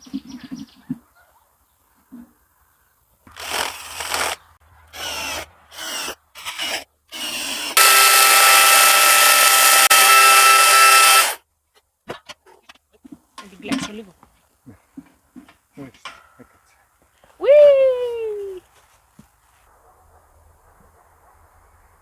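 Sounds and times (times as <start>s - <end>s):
power tool whining: 3.3s - 11.4s.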